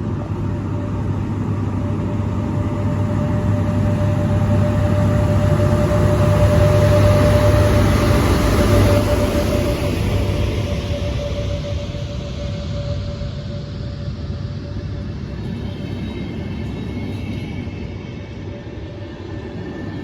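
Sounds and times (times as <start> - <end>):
train rumbling past: 0.0 - 20.0.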